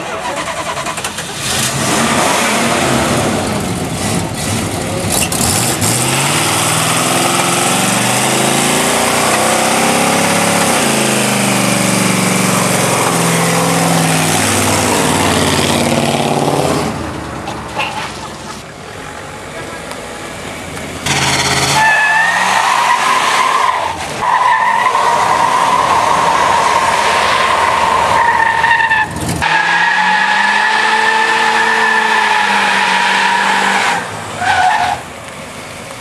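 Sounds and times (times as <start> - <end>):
car engine at high revs: 0.4 - 17.1, 19.9 - 34.7
spinning tyres hissing: 21.0 - 35.0.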